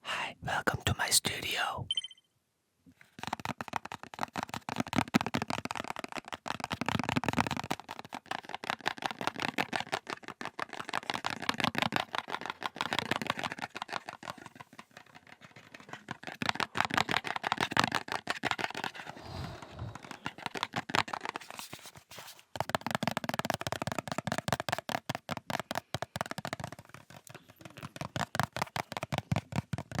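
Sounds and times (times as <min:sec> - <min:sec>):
fingers tapping on cable box: 0:22.6 - 0:30.0.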